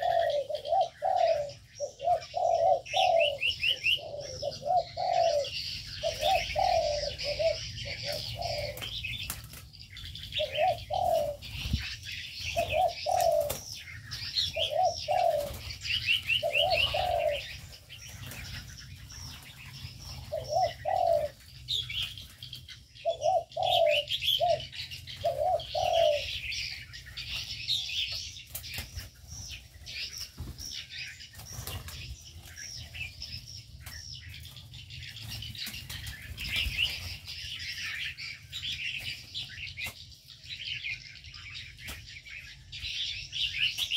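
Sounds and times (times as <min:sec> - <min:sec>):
doves cooing: 0:00.0 - 0:33.4
cage birds chirping: 0:00.0 - 0:43.9.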